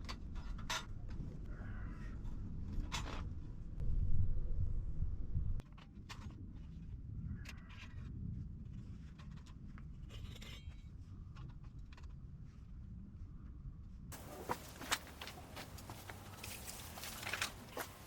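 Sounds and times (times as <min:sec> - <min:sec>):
low rumble: 0:03.8 - 0:05.6
rustling: 0:14.1 - 0:18.0.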